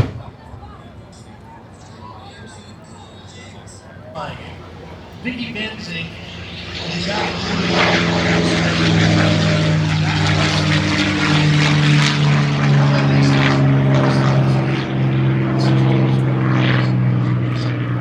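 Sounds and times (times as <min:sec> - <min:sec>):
propeller airplane droning: 0:04.2 - 0:18.0.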